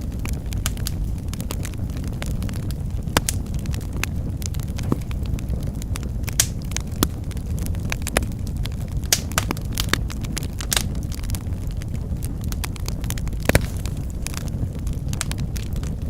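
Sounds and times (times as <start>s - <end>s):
fire pops and snaps: 0.0s - 16.0s
low rumble of burning: 0.0s - 16.0s.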